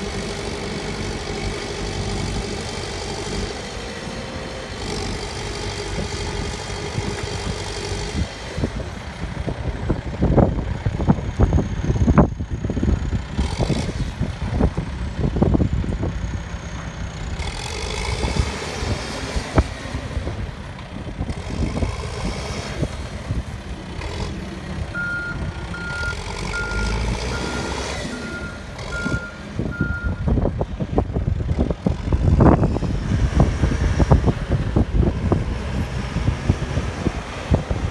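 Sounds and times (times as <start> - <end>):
diesel engine under load: 0.0 - 37.9
reversing alarm beeping: 25.0 - 30.3.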